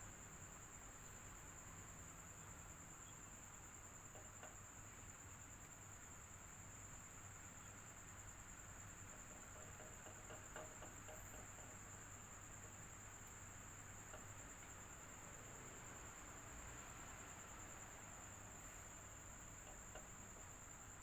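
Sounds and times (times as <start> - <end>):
soft ticks: 9.2 - 11.9.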